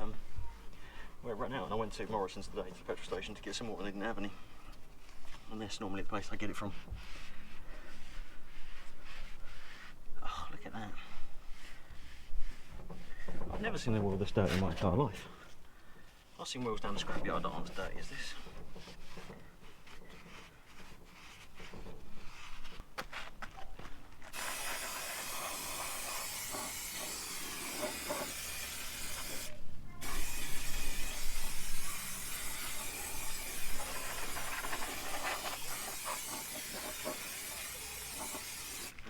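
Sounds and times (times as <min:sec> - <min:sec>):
aerosol spray hissing: 0:24.3 - 0:39.0.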